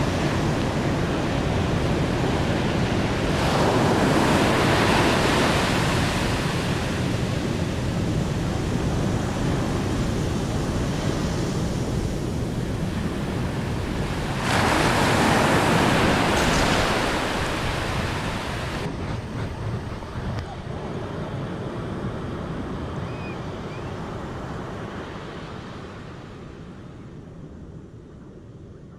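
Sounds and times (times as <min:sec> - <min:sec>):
rushing water: 0:00.0 - 0:18.9.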